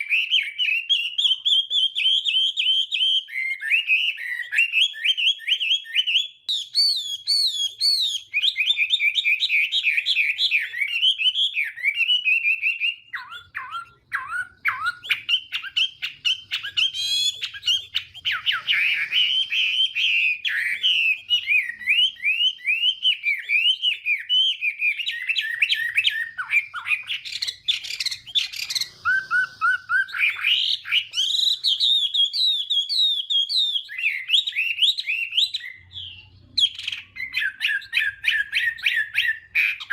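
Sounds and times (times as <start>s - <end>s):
bird singing whistled phrases: 0.0s - 39.9s.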